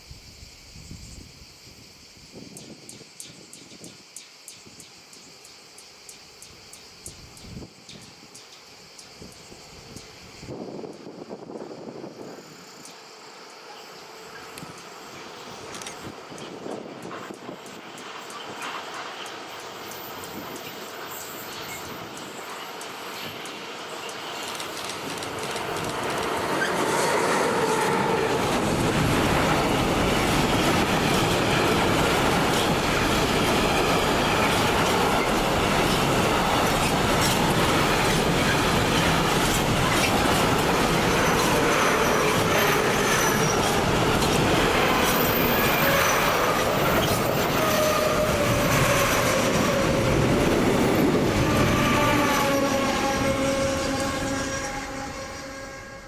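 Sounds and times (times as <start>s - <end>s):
train passing: 1.8s - 56.0s
wheels squealing: 18.4s - 56.0s.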